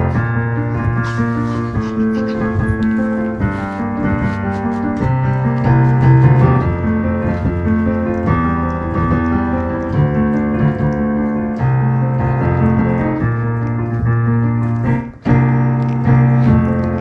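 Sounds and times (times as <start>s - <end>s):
piano playing held chords: 0.0s - 17.0s.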